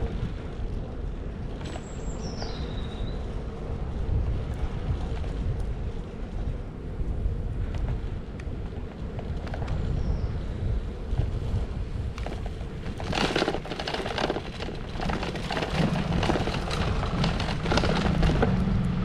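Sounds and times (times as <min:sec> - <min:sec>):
low engine hum: 0:00.0 - 0:19.0
wind on microphone: 0:00.0 - 0:19.0
dry crackling and crunching: 0:11.1 - 0:19.0.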